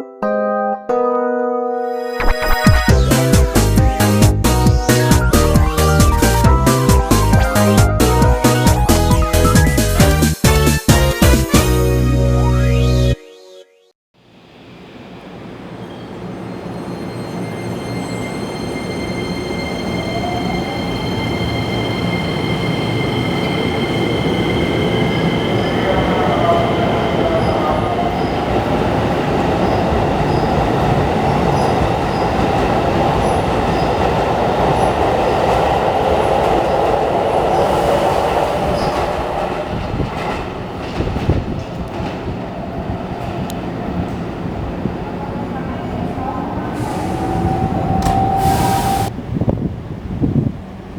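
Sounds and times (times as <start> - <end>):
electric train pulling in: 14.2 - 50.9
wheels and brakes squealing: 15.8 - 28.4, 29.6 - 30.6, 38.7 - 39.1, 46.8 - 49.1.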